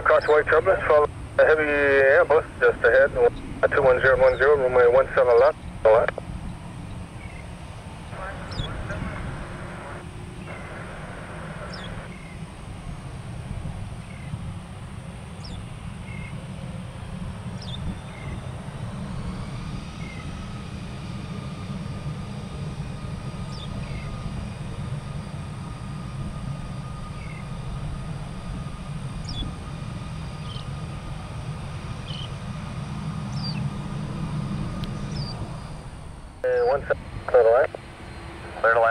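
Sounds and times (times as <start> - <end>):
birds calling: 0.0 - 0.9, 2.4 - 12.6, 15.3 - 16.6, 23.4 - 24.5, 27.0 - 27.8, 29.2 - 29.6, 30.2 - 31.0, 31.6 - 34.0, 34.9 - 35.8
faint steady whine: 0.0 - 38.9
steady low rumble: 0.0 - 38.9.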